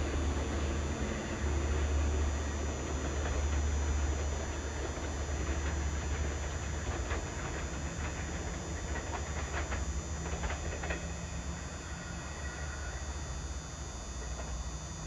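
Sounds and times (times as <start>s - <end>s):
train rumbling on rails: 0.0s - 15.0s
wheel clicks over rail joints: 3.0s - 12.8s.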